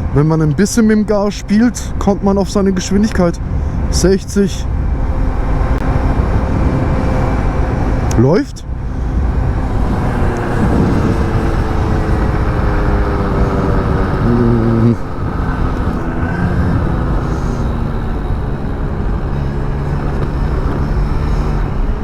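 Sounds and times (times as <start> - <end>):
wind rumble on microphone: 0.0 - 22.0
scooter engine running: 8.7 - 22.0.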